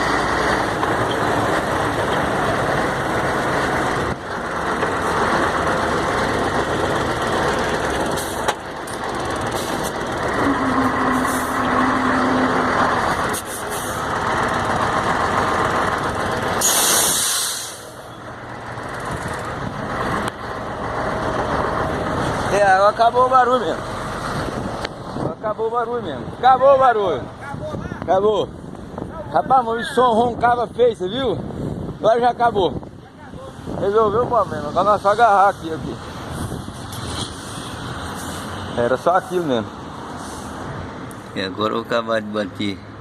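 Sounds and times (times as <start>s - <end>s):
diesel truck engine running: 0.0s - 29.4s
air brakes hiss: 16.6s - 18.0s, 40.2s - 40.6s.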